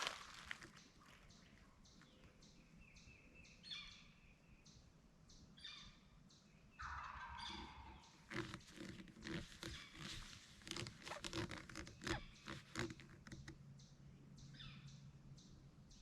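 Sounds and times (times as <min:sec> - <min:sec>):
distant turkey gobbling: 0:06.8 - 0:08.4.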